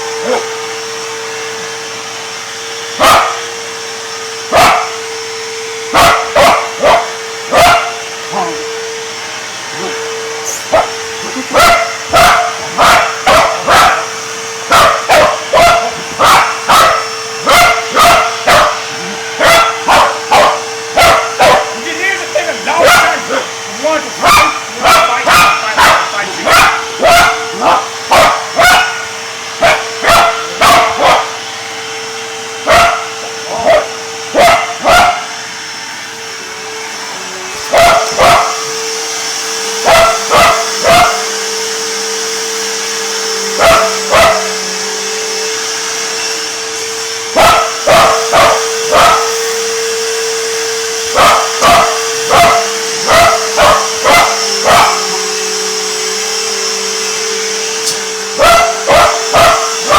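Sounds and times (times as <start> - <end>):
vacuum cleaner motor humming: 0.0 - 59.9
dog barking: 0.2 - 0.6, 3.0 - 3.5, 4.5 - 5.0, 5.9 - 8.6, 9.8 - 21.8, 22.7 - 23.4, 24.1 - 31.4, 32.6 - 35.4, 37.6 - 38.7, 39.8 - 41.4, 43.6 - 44.7, 47.3 - 49.5, 51.1 - 55.3, 58.4 - 59.9.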